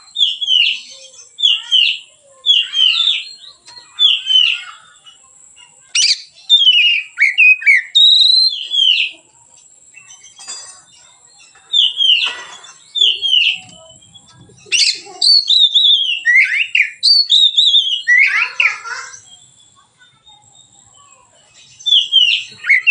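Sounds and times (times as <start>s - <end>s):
bird singing whistled phrases: 0.0s - 5.2s, 5.9s - 9.3s, 11.4s - 22.9s.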